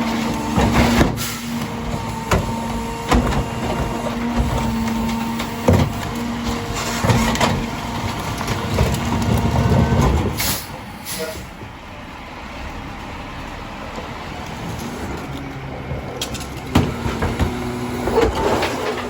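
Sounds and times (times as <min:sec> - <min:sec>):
garbage truck engine and hydraulics: 0:00.0 - 0:19.0
knocks and clanks: 0:00.4 - 0:10.5, 0:15.8 - 0:19.0.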